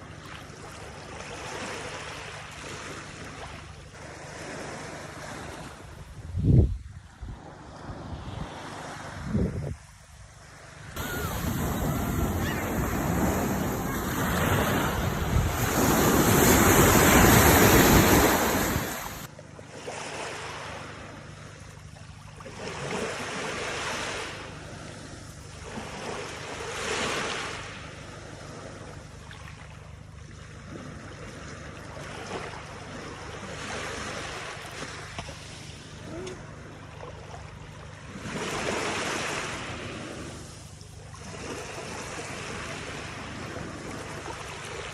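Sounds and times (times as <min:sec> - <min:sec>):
waves washing in: 0:10.9 - 0:21.2, 0:30.4 - 0:44.9
wind buffeting microphone: 0:11.0 - 0:19.3.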